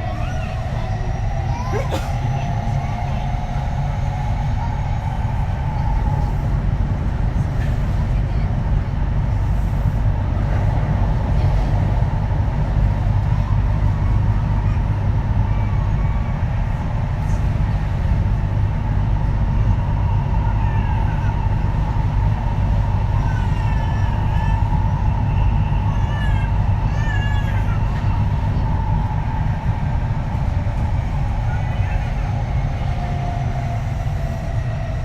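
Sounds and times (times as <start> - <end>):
wheel-on-rail rumble with whine: 0.0 - 35.0.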